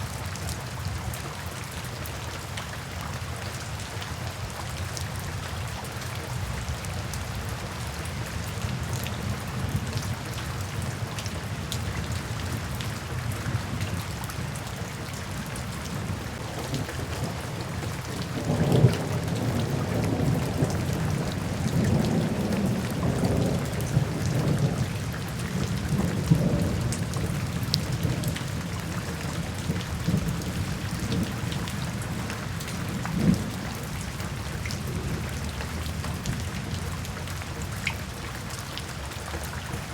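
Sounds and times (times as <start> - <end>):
steady rain: 0.0 - 39.9
thunder rumbling: 16.0 - 34.0.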